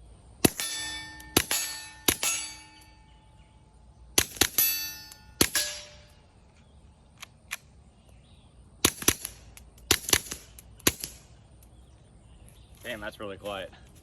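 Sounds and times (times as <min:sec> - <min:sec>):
suppressed pistol shots: 0:00.4 - 0:02.8, 0:04.2 - 0:06.2, 0:08.8 - 0:11.4.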